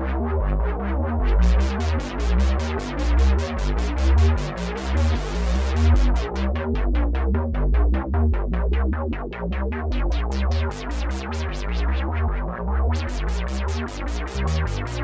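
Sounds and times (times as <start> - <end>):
deep synth bass: 0.0 - 15.0
synthesizer arpeggiated plucked notes: 1.4 - 6.7, 13.1 - 15.0.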